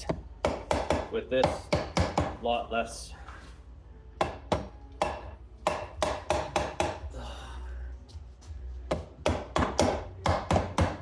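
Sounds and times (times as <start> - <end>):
hammer knocking on engine case: 0.0 - 2.4, 4.2 - 7.1, 8.9 - 11.0.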